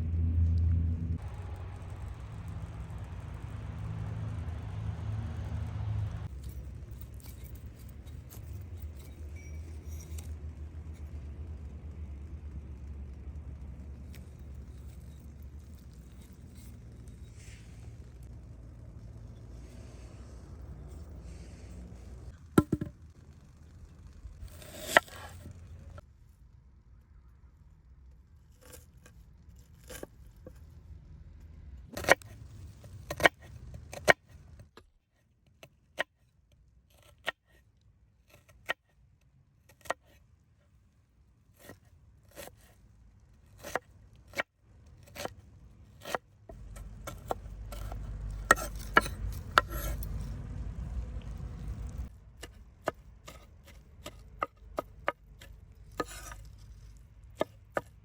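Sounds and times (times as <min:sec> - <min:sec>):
low rumbling noise: 0:00.0 - 0:07.0.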